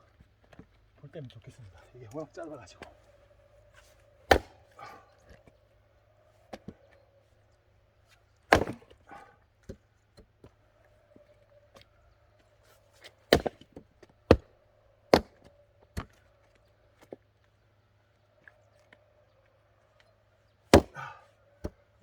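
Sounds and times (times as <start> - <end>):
axe chopping firewood: 3.8 - 5.5, 6.5 - 6.9, 8.3 - 10.6, 13.0 - 14.5, 15.1 - 16.3, 20.7 - 22.0.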